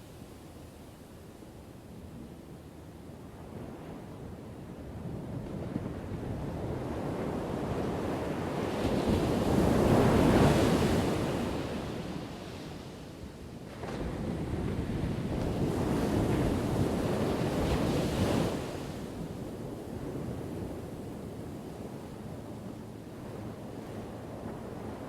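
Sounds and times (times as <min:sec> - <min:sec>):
ocean waves breaking on shore: 0:13.7 - 0:25.0.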